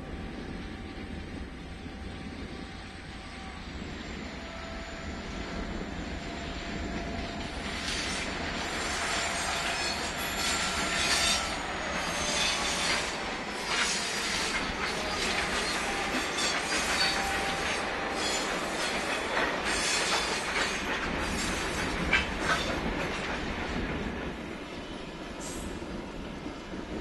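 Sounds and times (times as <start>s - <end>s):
train wheels clacking over rails: 5.6s - 24.6s.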